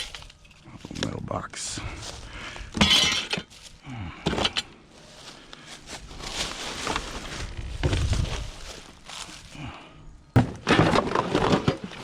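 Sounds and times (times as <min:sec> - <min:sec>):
rustling: 0:04.6 - 0:09.7.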